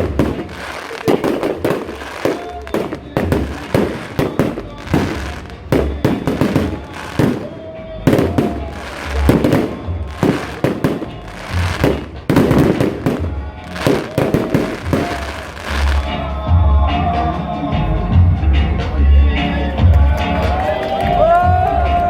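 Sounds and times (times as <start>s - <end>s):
fireworks bangs and crackles: 0.0s - 16.1s
music playing: 0.0s - 22.0s.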